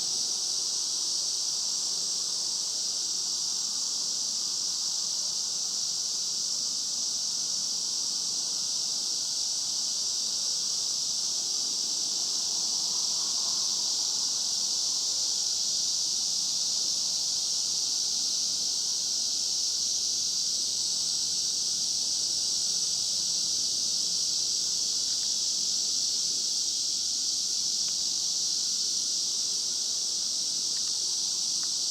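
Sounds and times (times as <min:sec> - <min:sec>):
cicadas singing: 0:00.0 - 0:31.9.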